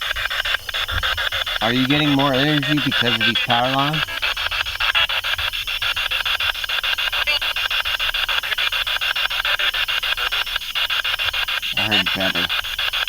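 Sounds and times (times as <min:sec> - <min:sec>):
radio scanner static sweeping: 0:00.0 - 0:13.0
brief radio snippets: 0:01.6 - 0:04.2, 0:11.7 - 0:12.6.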